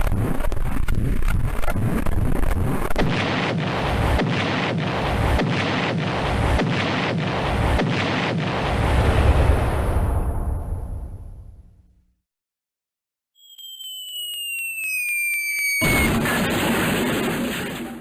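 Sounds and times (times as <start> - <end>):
rapid cracking bangs: 0.0 - 8.8, 15.8 - 18.0
loud pulsing blasting rumble: 0.0 - 11.3.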